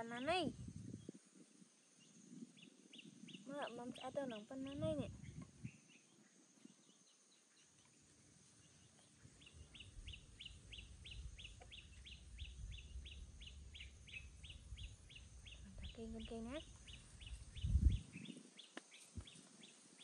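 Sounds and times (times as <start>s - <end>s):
wind rumble on microphone: 0.0s - 6.0s, 9.2s - 20.0s
bird chirping rapidly: 9.4s - 19.8s.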